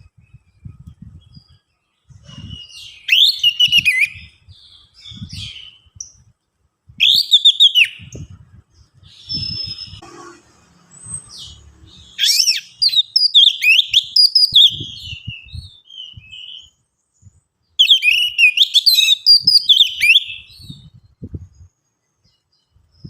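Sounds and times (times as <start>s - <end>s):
thrush singing: 9.4s - 13.0s.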